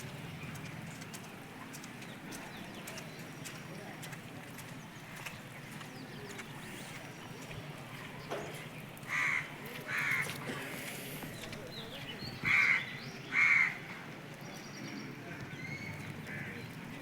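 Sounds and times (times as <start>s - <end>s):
crow cawing: 9.1s - 10.4s, 12.5s - 13.8s.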